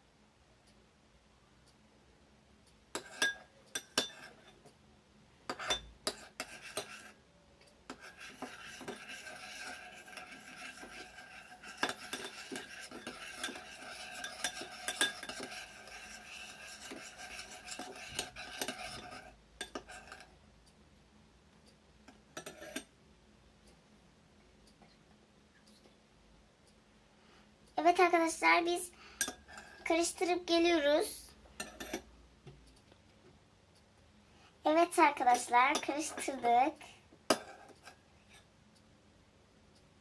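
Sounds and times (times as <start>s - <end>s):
spoon stirring and scraping bowl: 2.9s - 4.7s, 5.5s - 7.2s, 7.8s - 20.3s, 22.1s - 22.9s, 29.2s - 30.8s, 31.6s - 32.1s, 34.7s - 38.5s.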